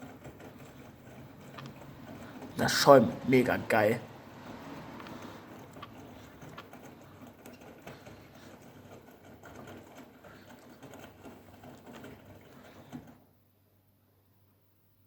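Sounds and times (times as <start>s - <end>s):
small knocks and clicks: 0.0s - 2.6s, 4.5s - 13.2s.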